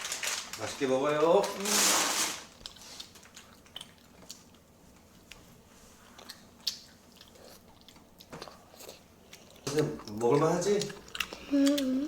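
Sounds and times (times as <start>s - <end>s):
people chewing: 2.5s - 12.0s.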